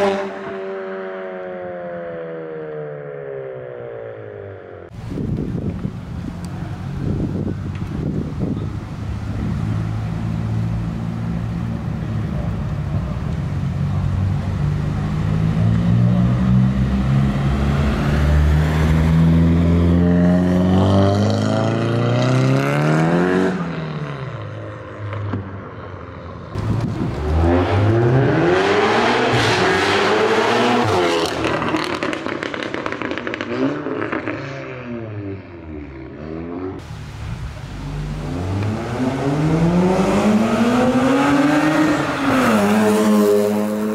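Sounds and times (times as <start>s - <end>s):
engine revving: 26.6s - 34.5s, 37.8s - 43.9s
car engine accelerating: 26.6s - 35.0s, 36.0s - 43.9s.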